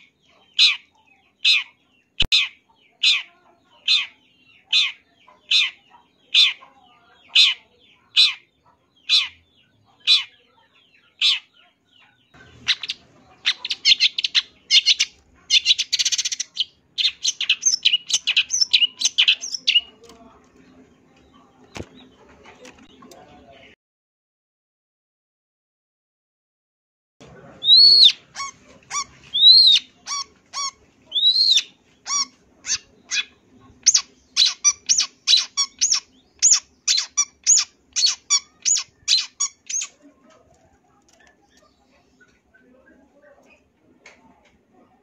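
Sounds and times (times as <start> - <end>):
harsh bird calls: 0.0 - 20.1, 27.4 - 40.0
fast chattering birdsong: 0.0 - 23.8, 27.3 - 43.8.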